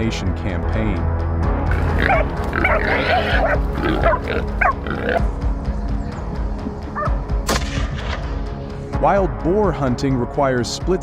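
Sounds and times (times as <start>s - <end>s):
background music: 0.0s - 11.0s
hog squealing: 1.7s - 5.3s.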